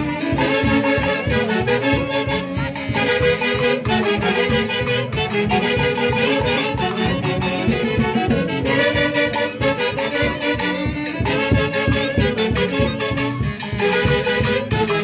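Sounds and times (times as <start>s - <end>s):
reed and wind band melody: 0.0s - 15.0s.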